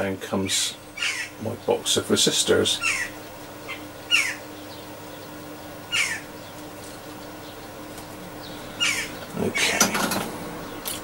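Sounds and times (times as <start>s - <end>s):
faint steady hum: 0.0s - 11.0s
bird harsh calls: 0.8s - 1.4s, 2.7s - 9.8s.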